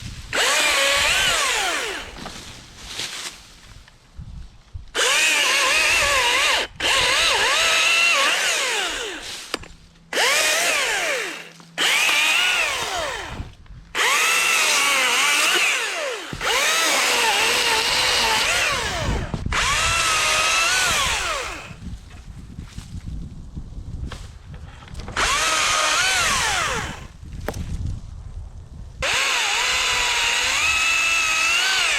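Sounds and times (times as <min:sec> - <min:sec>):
battery chainsaw cutting wood: 0:00.3 - 0:02.4, 0:05.0 - 0:21.9, 0:25.1 - 0:27.1, 0:29.0 - 0:31.9.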